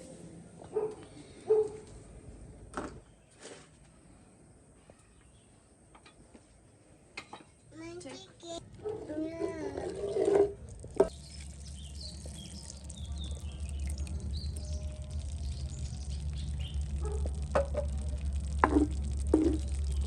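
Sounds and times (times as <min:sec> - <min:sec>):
steady low rumble: 0:10.6 - 0:20.0
small birds chirping: 0:10.8 - 0:17.5.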